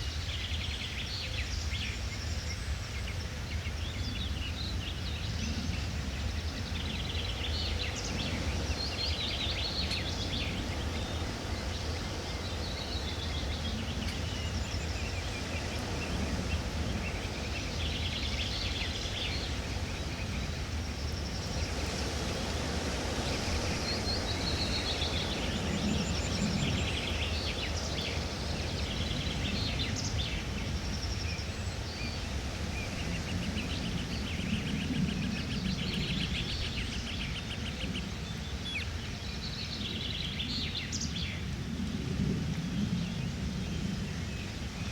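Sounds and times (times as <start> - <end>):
small birds chirping and trilling: 0.0 - 44.9.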